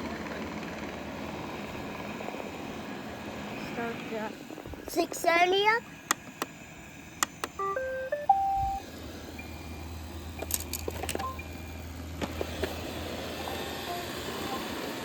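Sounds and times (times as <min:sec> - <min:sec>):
electronic start-up beeps: 0:07.6 - 0:08.8, 0:09.4 - 0:09.9, 0:11.2 - 0:11.8
robot vacuum humming: 0:12.3 - 0:15.0.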